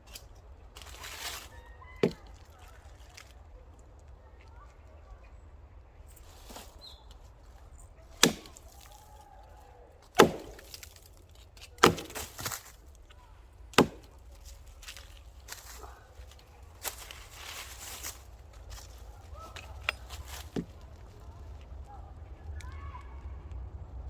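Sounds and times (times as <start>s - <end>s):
wood cracking: 0.0s - 4.2s, 6.5s - 23.6s
hatchet chopping wood: 2.0s - 2.2s, 8.2s - 9.0s, 10.1s - 12.7s, 13.7s - 14.2s, 19.5s - 20.8s.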